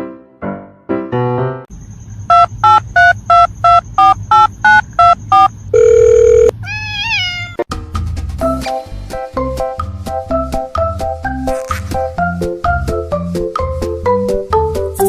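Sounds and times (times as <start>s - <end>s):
telephone dialing beeps: 2.3s - 6.5s.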